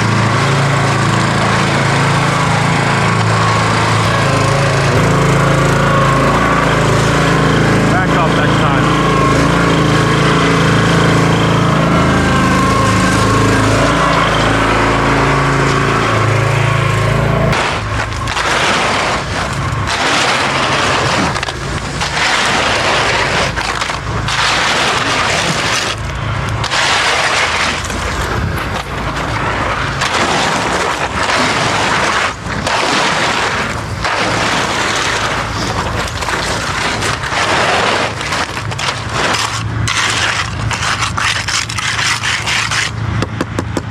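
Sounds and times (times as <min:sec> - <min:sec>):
small engine running: 0:00.0 - 0:43.6
tools scraping wet concrete: 0:06.7 - 0:09.6, 0:17.5 - 0:43.8.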